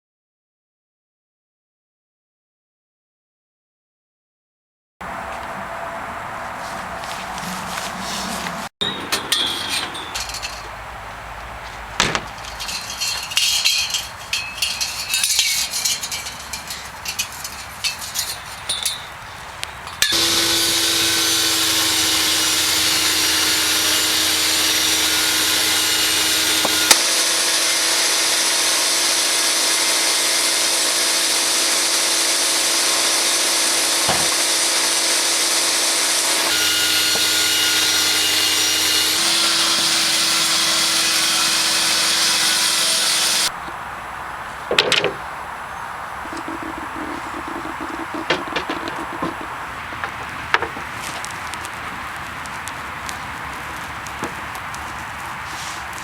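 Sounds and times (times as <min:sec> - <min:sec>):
clinking and knocking: 0:08.8 - 0:10.8, 0:12.0 - 0:19.2, 0:46.2 - 0:50.9
sawmill saw running with whine: 0:20.0 - 0:43.5.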